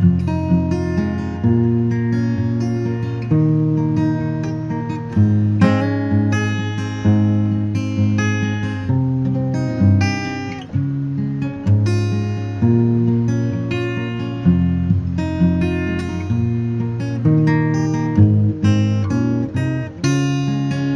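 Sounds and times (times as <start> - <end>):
acoustic guitar strummed chords: 0.0 - 20.9.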